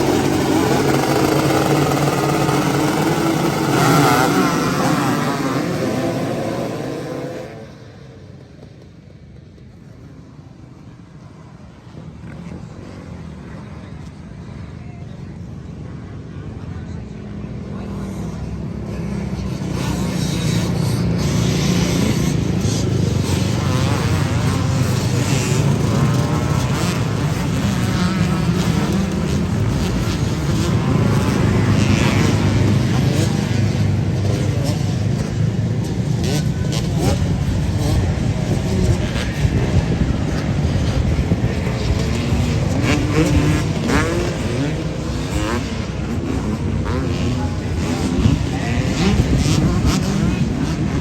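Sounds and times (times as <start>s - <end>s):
engine droning: 0.0s - 9.8s
motorcycle engines revving: 0.0s - 51.0s.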